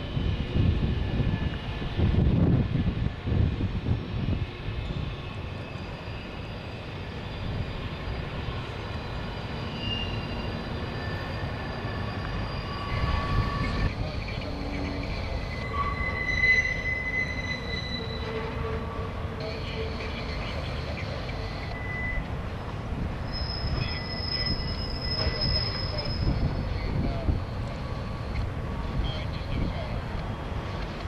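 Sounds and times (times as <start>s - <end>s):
high squealing tones: 9.4s - 20.2s, 23.2s - 27.0s.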